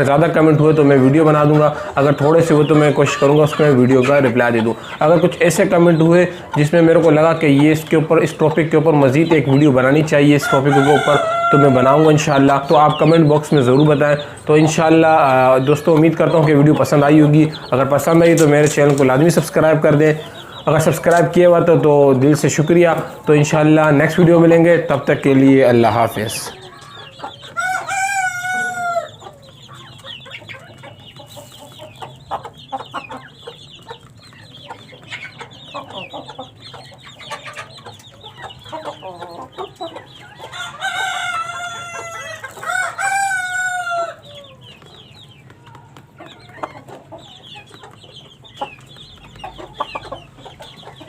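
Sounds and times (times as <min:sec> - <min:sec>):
chickens clucking: 0:00.0 - 0:51.0
rooster crowing: 0:10.4 - 0:12.3, 0:27.5 - 0:29.2, 0:40.6 - 0:44.6.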